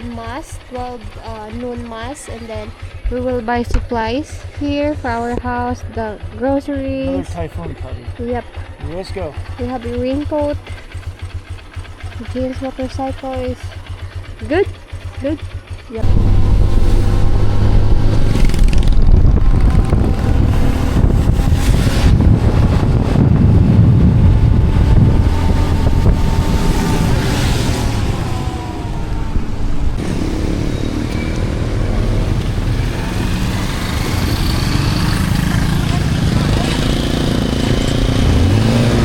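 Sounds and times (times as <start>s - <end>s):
motorcycle engine running: 0.0s - 39.0s
wind buffeting microphone: 16.0s - 39.0s.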